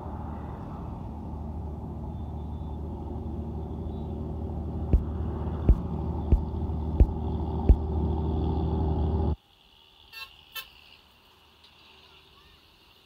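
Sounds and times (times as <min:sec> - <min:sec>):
truck engine low drone: 0:00.0 - 0:10.0
road noise: 0:00.0 - 0:13.0
sharp knocks: 0:04.9 - 0:07.9.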